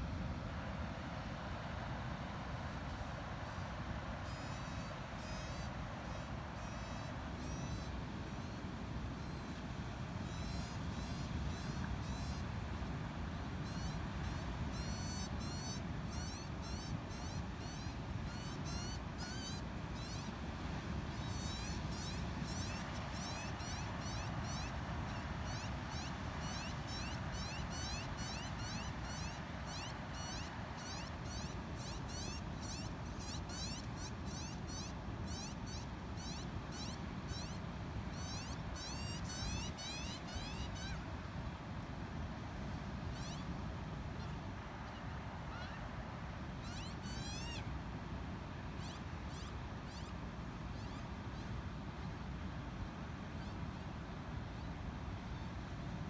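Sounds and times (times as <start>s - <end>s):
young magpie begging calls: 4.3s - 8.6s, 10.3s - 12.4s, 13.6s - 20.3s, 25.5s - 41.0s, 46.6s - 47.6s.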